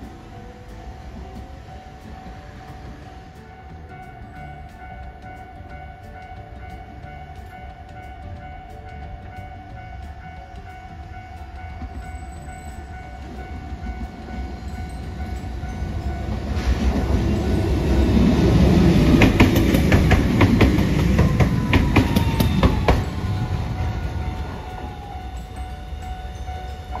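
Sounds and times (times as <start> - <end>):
tram rumbling past: 0.0 - 27.0
wheel clicks on rails: 0.0 - 27.0.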